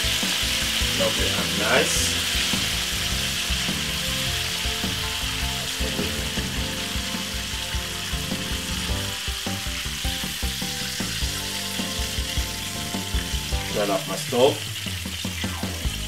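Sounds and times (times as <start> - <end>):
chicken deep-frying in hot oil: 0.0 - 16.0.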